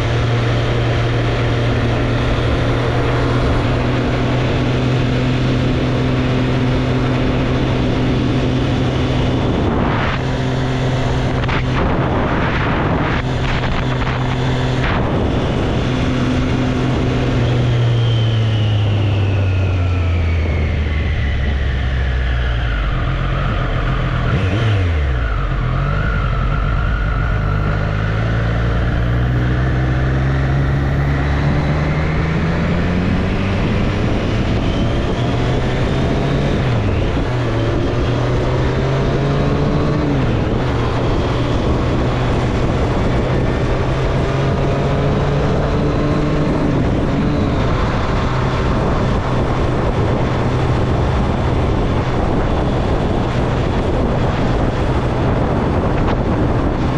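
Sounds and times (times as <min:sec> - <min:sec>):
motorcycle engine revving: 0:00.0 - 0:56.9
wind noise: 0:00.0 - 0:56.9.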